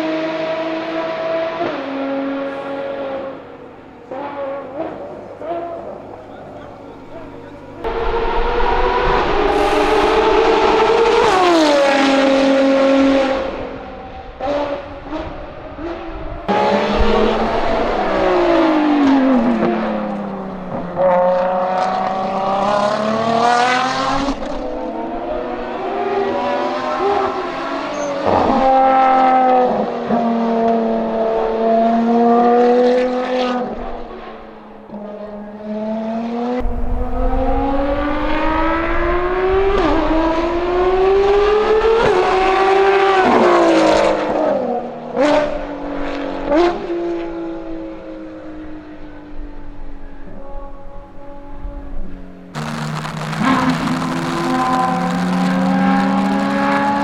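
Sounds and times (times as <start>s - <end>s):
race car engine revving: 0.0s - 48.9s, 52.6s - 57.0s
exhaust cracks: 16.5s - 20.9s, 36.6s - 41.3s, 52.6s - 57.0s.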